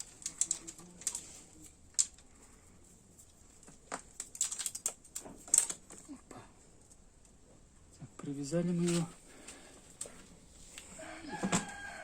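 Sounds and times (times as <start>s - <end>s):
hands handling metal part: 0.0s - 2.3s.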